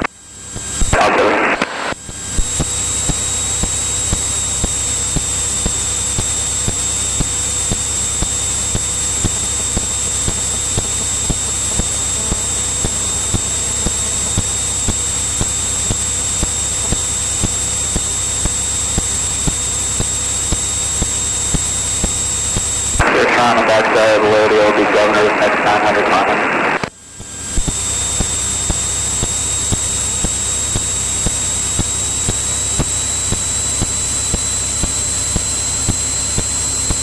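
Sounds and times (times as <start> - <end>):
aircraft engine drone: 0.0 - 37.0
thin high whine: 0.0 - 37.0.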